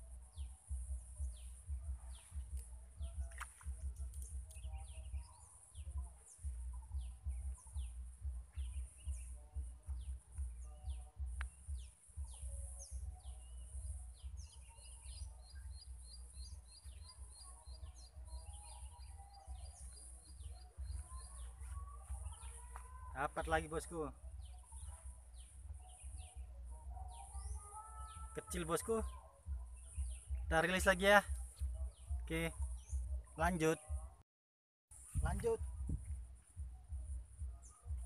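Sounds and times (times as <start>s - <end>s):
birds chirping: 0.0s - 34.2s, 35.0s - 38.0s
wind on microphone: 35.0s - 38.0s.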